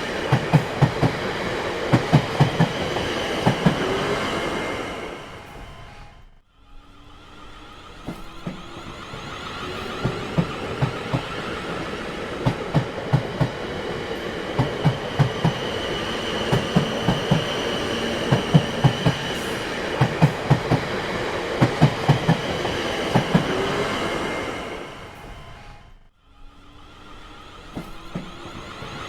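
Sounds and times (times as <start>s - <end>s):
train wheels clacking on rail joints: 0.0s - 4.6s, 7.9s - 24.1s, 27.6s - 29.0s
steady train rumble: 0.0s - 29.0s.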